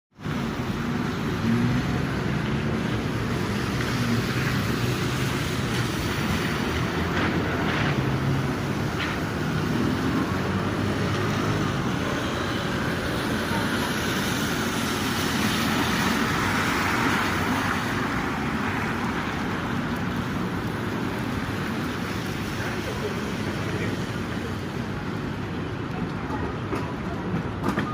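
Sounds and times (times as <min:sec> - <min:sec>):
urban traffic noise: 0:00.1 - 0:27.9.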